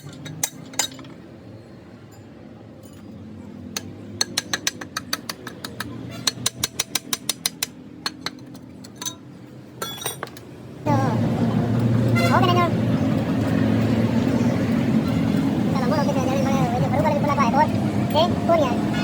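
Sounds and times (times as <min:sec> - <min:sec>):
light metallic taps and clinks: 0:03.8 - 0:10.5.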